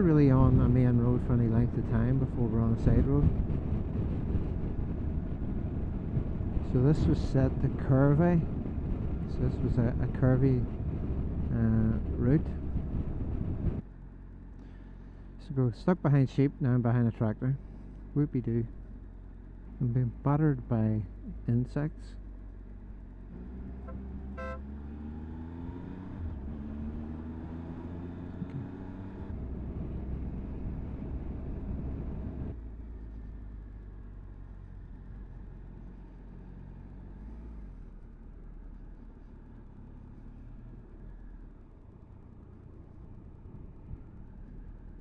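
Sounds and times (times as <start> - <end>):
wind rush on microphone: 1.7 - 13.8, 29.3 - 32.6
motorcycle engine revving: 23.3 - 31.1.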